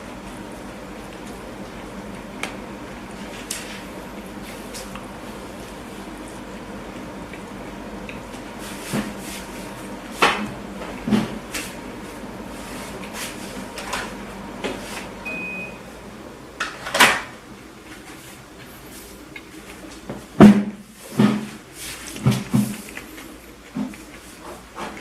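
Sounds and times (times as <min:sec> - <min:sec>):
person chewing food: 0:04.5 - 0:10.2, 0:21.9 - 0:25.0.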